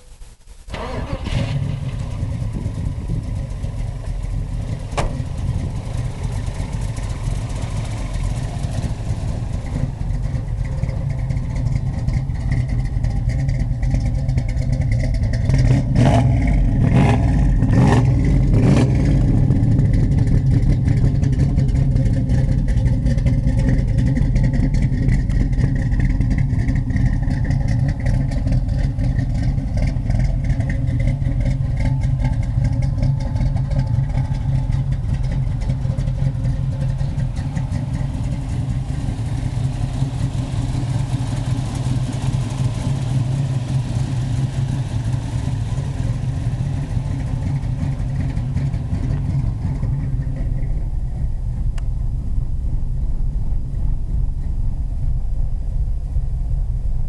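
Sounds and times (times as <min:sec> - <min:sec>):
car engine starting and idling: 0:00.0 - 0:57.0.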